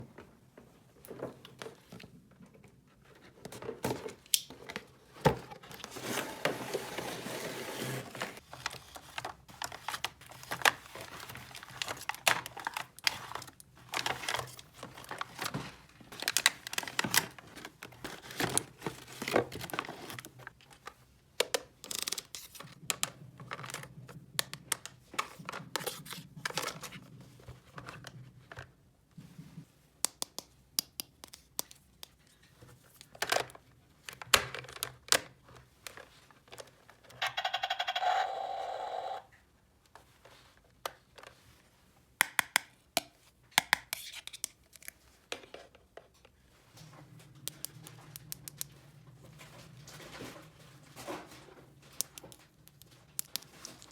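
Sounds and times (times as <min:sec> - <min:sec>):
plastic packaging crinkling and tearing: 0:06.8 - 0:20.8.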